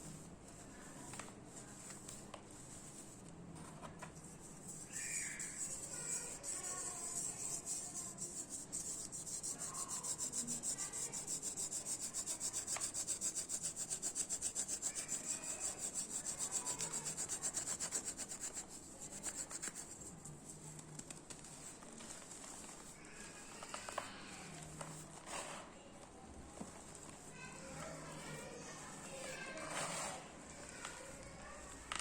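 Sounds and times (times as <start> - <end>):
hands rubbing crumbling cement: 4.5 - 20.2.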